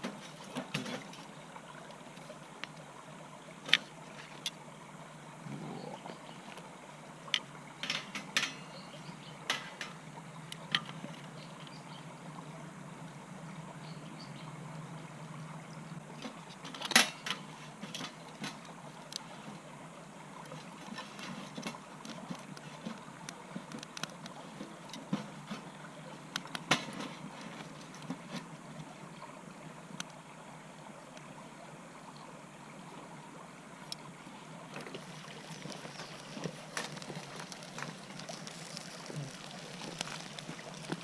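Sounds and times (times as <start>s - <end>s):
low steady hum: 0.0s - 41.0s
fire crackling clicks: 21.6s - 25.1s, 26.3s - 26.9s, 34.8s - 41.0s.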